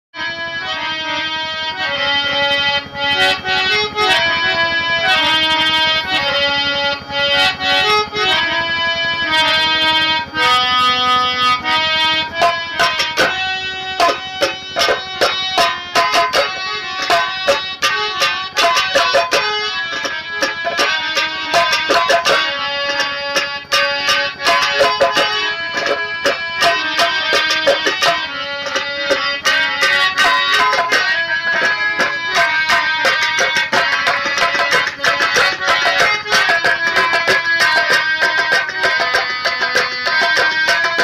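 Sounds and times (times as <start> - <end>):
harmonium melody: 0.2 - 41.0
fast drum strikes: 12.2 - 41.0.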